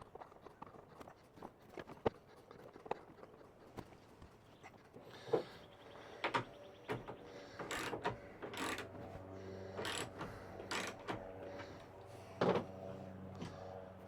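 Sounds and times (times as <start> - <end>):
faint steady hum: 1.6 - 14.0
mechanical clicking and rattling: 6.2 - 9.1, 9.7 - 11.7.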